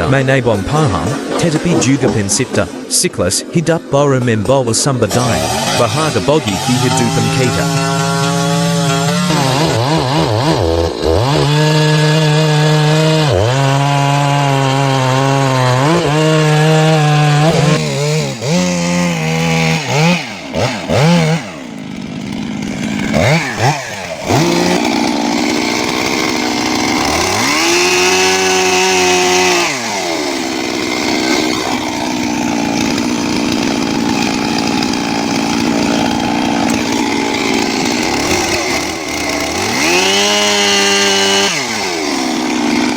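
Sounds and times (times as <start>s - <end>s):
chainsaw engine cutting wood: 0.0s - 3.7s, 4.4s - 42.9s.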